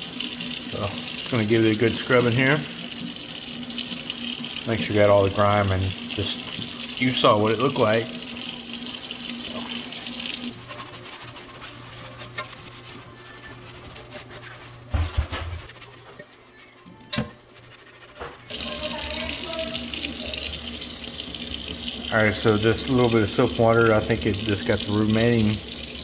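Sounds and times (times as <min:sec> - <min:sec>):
skillet being washed: 0:00.0 - 0:16.4, 0:17.1 - 0:26.0
sharp knocks: 0:14.9 - 0:15.7
tap running into sink: 0:14.9 - 0:15.7.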